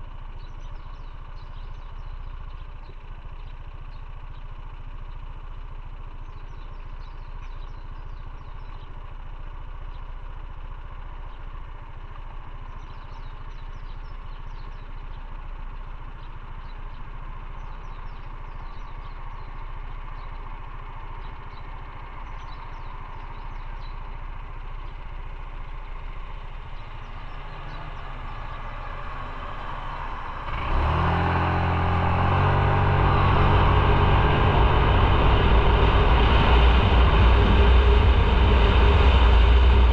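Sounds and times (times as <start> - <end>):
motorcycle engine revving: 17.5 - 39.9.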